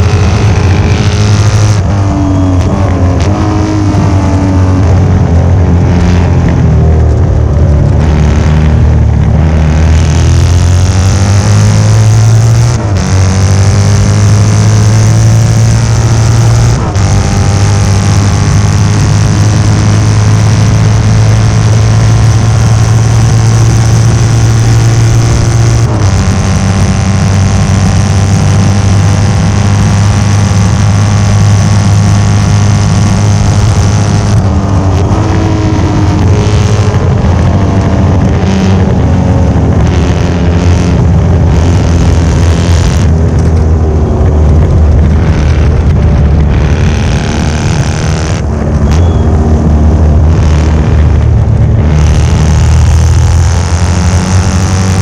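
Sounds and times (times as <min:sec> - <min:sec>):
motorcycle engine at racing speed: 0:00.0 - 0:55.0.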